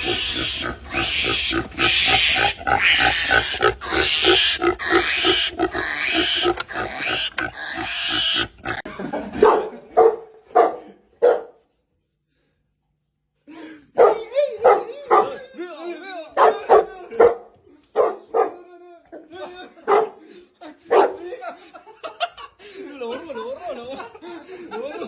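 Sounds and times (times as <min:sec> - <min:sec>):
animal calls: 0:00.0 - 0:08.9
animal making rough sounds: 0:00.0 - 0:08.9.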